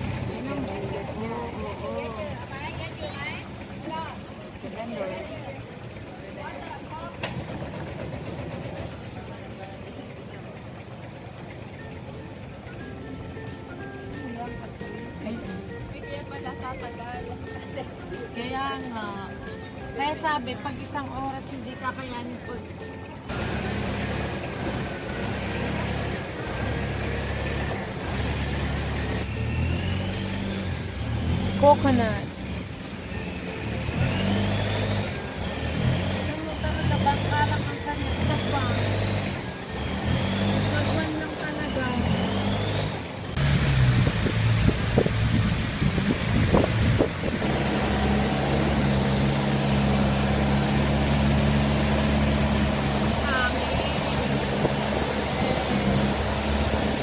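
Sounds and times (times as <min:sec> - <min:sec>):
motor engine running: 0:00.0 - 0:57.0.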